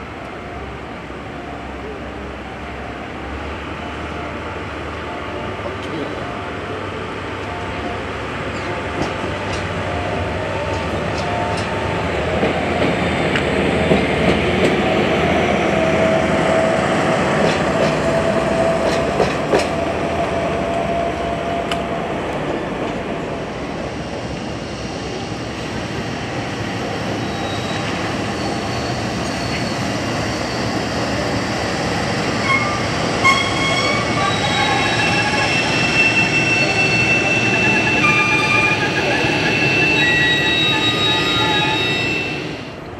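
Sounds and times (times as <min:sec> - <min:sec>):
train wheel squeal: 0:27.0 - 0:42.7.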